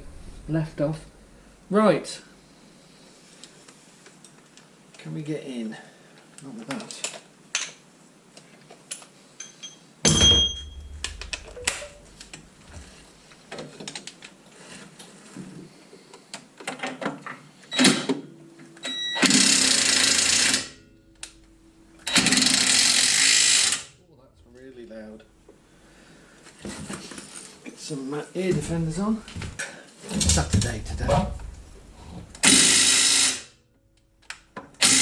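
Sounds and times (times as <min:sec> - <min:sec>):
tools clinking on metal: 0:09.4 - 0:12.0
ringing metal clank: 0:09.4 - 0:12.3
impact wrench hammering: 0:10.1 - 0:12.4.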